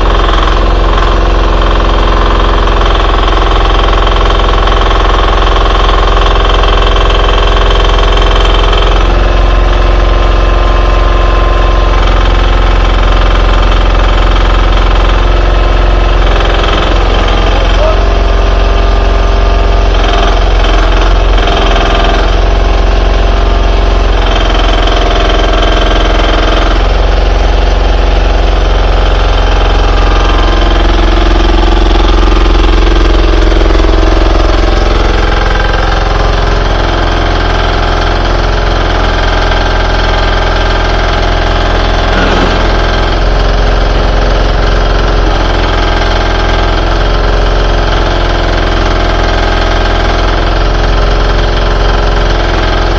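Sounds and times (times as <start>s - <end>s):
excavator engine running: 0.0s - 52.9s.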